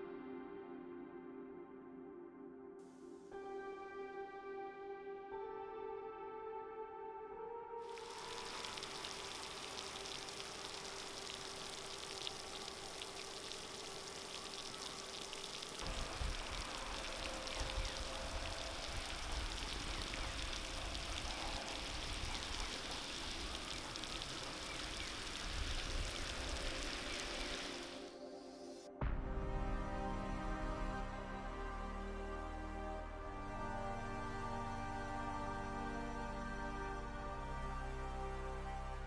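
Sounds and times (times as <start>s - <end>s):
wet hiss of thawing snow: 7.9s - 28.8s.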